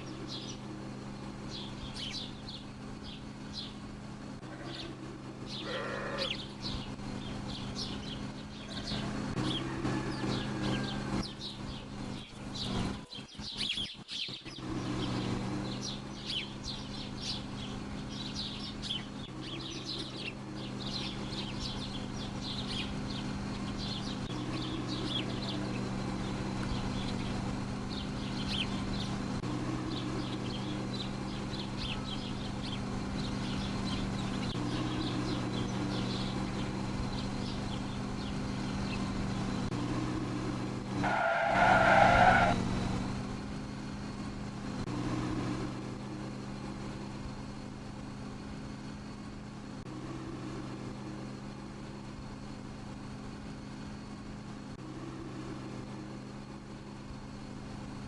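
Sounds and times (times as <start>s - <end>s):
steady low hum: 0.0s - 41.1s, 42.5s - 58.0s
small birds chirping: 0.0s - 58.0s.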